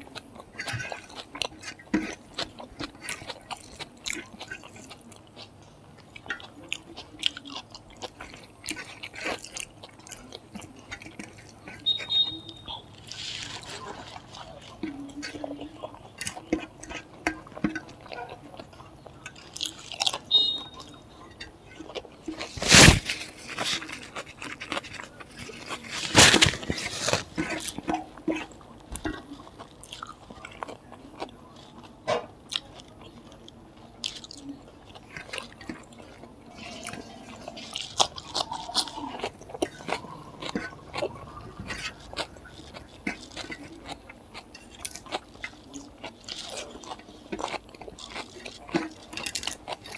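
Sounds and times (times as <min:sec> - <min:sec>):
fingers mixing rice on metal plate: 0:00.0 - 0:32.8, 0:33.4 - 0:49.9
person chewing food: 0:00.0 - 0:49.9
crunching papad: 0:07.2 - 0:18.4, 0:21.8 - 0:31.9, 0:34.0 - 0:49.9.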